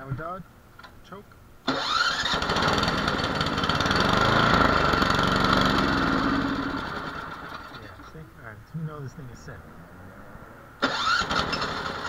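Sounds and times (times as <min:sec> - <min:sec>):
snowblower engine running: 0:01.7 - 0:07.8.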